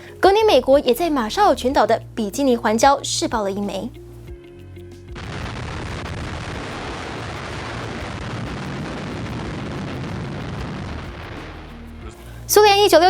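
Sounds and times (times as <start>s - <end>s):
explosion rumble: 5.1s - 12.1s.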